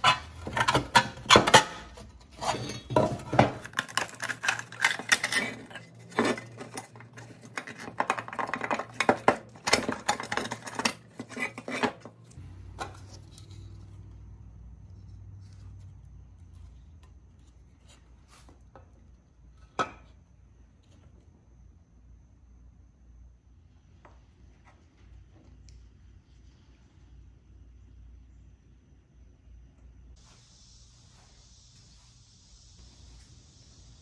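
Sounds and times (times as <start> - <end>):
metal and plastic scraping and clattering: 0.0 - 14.0.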